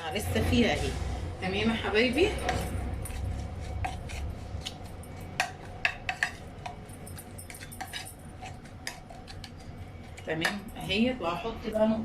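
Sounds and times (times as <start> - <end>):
utensils clinking against dish: 2.1 - 11.2.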